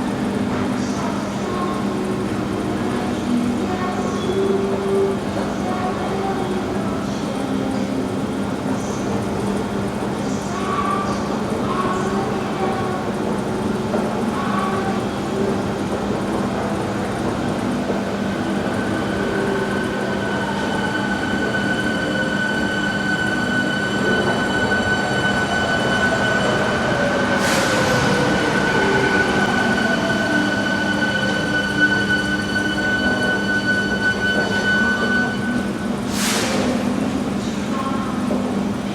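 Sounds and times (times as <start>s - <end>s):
metro train running with electric whine: 0.0s - 38.9s
air hiss: 36.1s - 36.9s.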